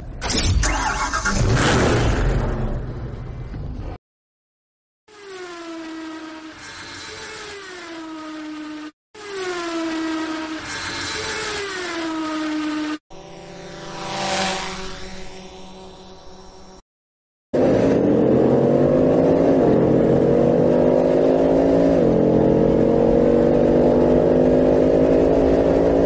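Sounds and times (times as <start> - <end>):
car engine revving: 17.6 - 26.0.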